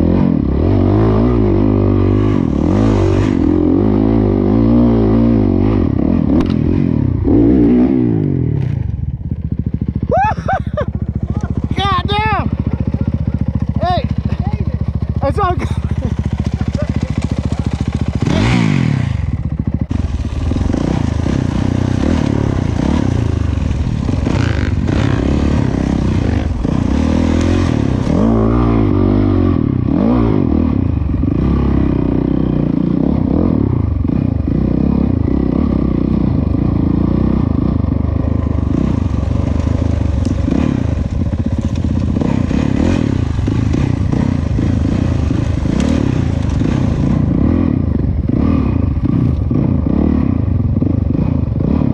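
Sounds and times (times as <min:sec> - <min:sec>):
dirt bike engine revving: 0:00.0 - 0:51.9
bike rattling over rough ground: 0:10.7 - 0:28.9, 0:36.6 - 0:48.4.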